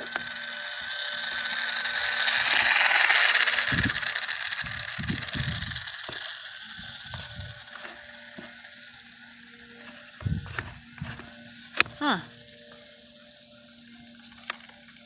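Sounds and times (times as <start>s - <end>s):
electric motor and propeller whining: 0.0s - 15.0s
wind buffeting microphone: 3.6s - 5.9s, 6.8s - 7.7s, 10.2s - 11.1s.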